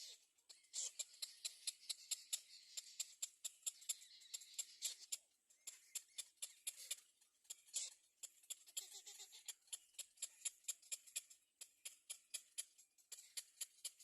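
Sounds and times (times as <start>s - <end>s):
small birds chipping: 0.0s - 14.0s.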